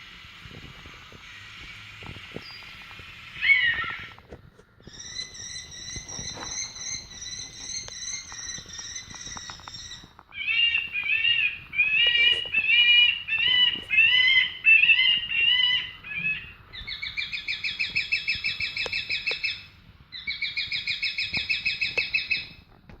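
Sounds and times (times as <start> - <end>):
rising-and-falling chirps: 2.4 - 4.2, 4.8 - 18.8.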